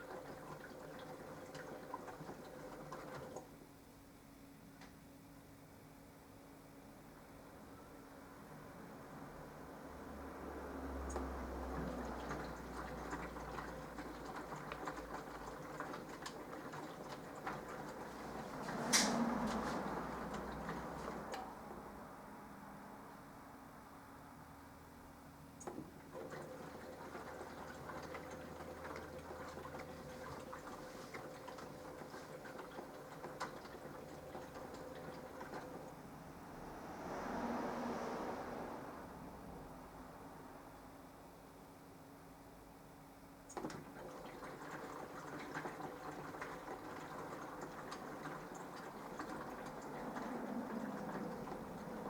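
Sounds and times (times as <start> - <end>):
washing machine humming: 0.0 - 52.0
washing machine click: 18.7 - 19.7.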